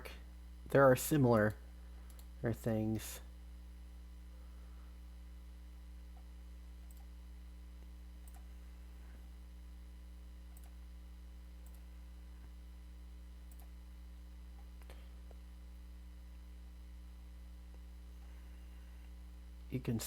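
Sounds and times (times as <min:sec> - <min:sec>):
low electrical hum: 0:00.0 - 0:20.0
faint computer mouse clicks: 0:02.1 - 0:02.3, 0:10.5 - 0:10.8, 0:13.5 - 0:13.7.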